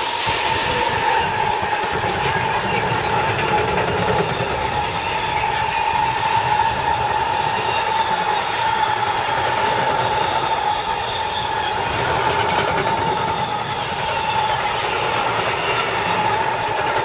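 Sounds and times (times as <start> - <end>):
train rolling past: 0.0 - 17.0.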